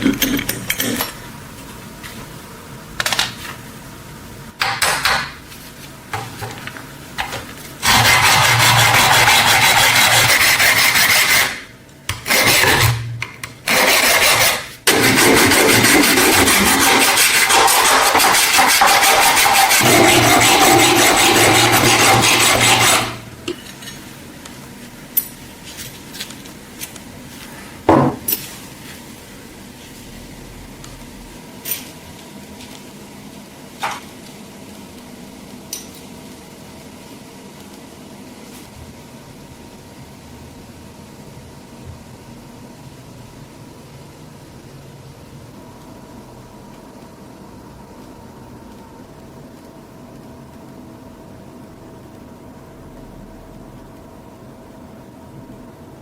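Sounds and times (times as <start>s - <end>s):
low workshop hum: 0.0s - 56.0s
rotary abrasive tool grinding steel: 13.7s - 23.2s.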